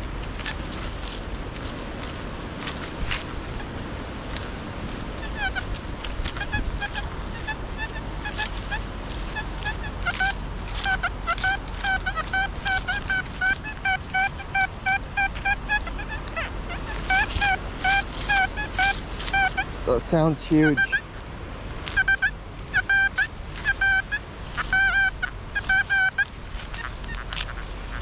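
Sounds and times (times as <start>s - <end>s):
wind buffeting microphone: 0.0s - 21.7s.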